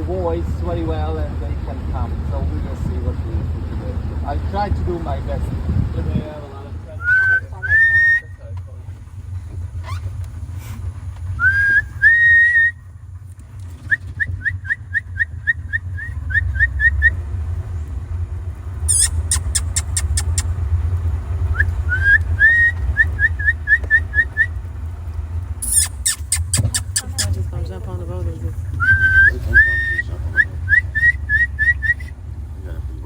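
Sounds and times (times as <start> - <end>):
steady low rumble: 0.0 - 33.0
person whistling: 7.0 - 8.3, 11.4 - 12.8, 18.9 - 20.4, 21.6 - 24.5, 25.6 - 27.0, 28.8 - 32.1
sharp high clicks: 18.9 - 20.6, 25.6 - 27.4
quick rising chirps: 18.9 - 20.8, 25.6 - 27.4.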